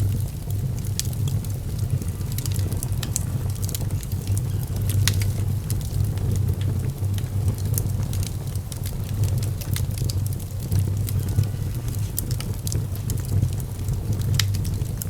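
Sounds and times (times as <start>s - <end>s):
fire crackling and popping: 0.0s - 15.0s
fire low rumble: 0.0s - 15.0s.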